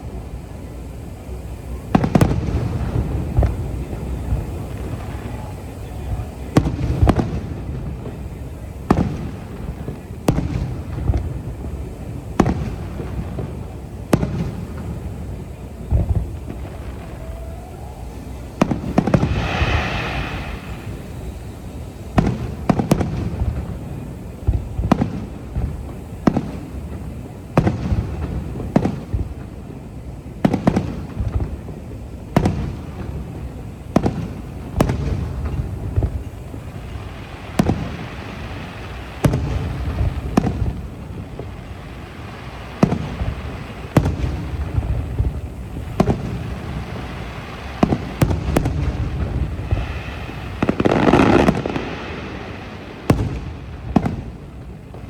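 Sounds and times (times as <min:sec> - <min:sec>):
fireworks bangs: 0:00.0 - 0:55.0
fireworks crackling: 0:00.0 - 0:55.0
low rumbling echo: 0:18.8 - 0:22.1.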